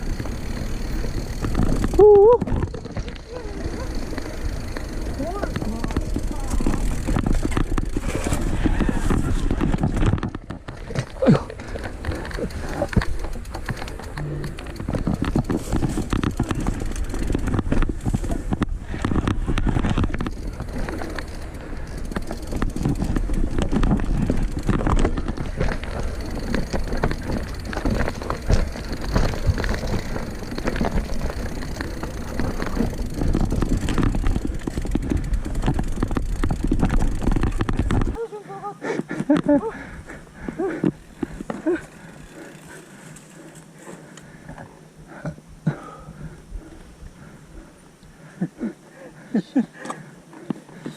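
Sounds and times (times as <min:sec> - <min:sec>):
bike knocks and rattles: 0:00.0 - 0:38.2
mountain bike rolling over trail: 0:00.0 - 0:38.3, 0:39.0 - 0:48.7.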